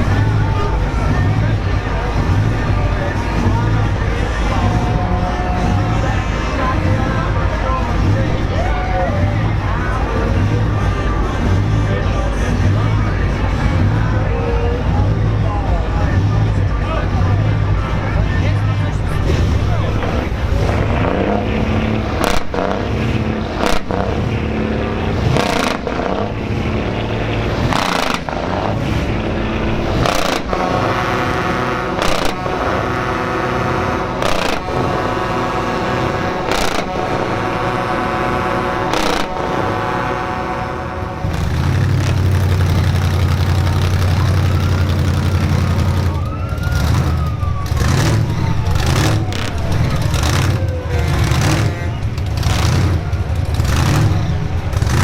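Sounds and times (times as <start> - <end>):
heavy truck engines running: 0.0 - 55.0
faint siren wailing: 43.4 - 51.7.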